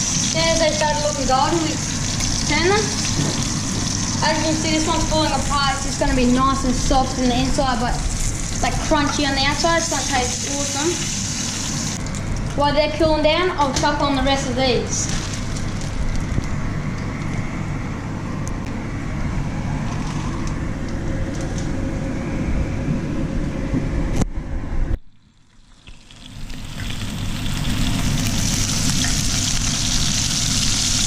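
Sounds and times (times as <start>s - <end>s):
fish frying in hot oil: 0.0s - 12.0s, 25.2s - 31.0s
low hum: 0.0s - 30.2s.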